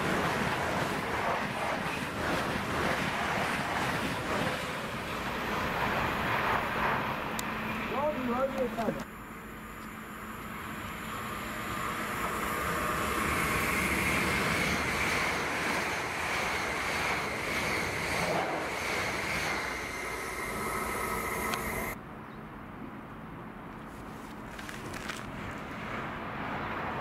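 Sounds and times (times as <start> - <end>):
train wheels rushing on rail: 0.0 - 22.0
high electric whine: 5.5 - 22.0.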